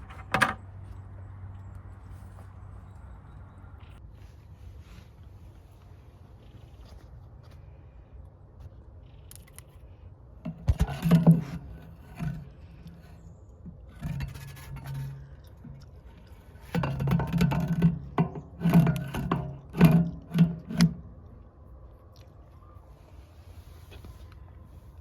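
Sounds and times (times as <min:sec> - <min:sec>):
metal tools clanking and rattling: 0:13.8 - 0:21.0.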